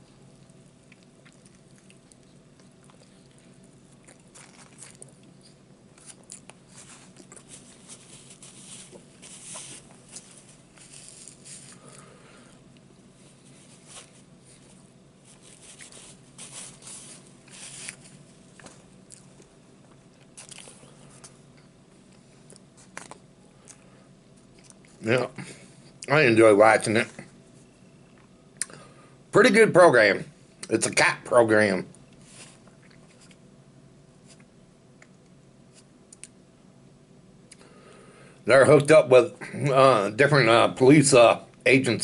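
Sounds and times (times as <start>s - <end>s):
man chewing a sandwich: 0.0s - 26.1s, 27.6s - 29.0s, 32.0s - 33.5s.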